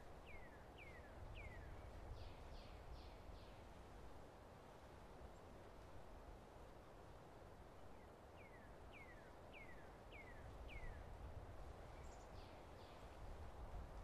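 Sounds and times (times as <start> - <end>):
faint whistled bird song: 0.2 - 3.7, 7.8 - 11.2, 11.8 - 13.3.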